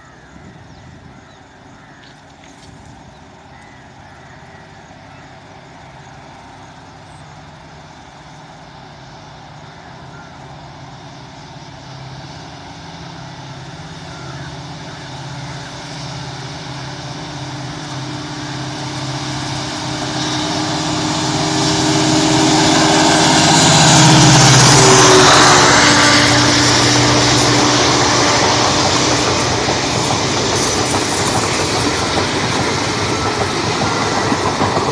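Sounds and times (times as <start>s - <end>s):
broad rushing noise of train: 0.0s - 34.9s
diesel locomotive engine drone: 0.0s - 34.9s.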